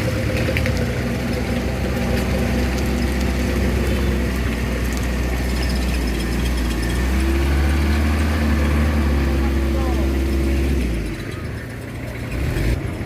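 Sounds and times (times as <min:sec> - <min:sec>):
truck engine running with clatter: 0:00.0 - 0:13.0.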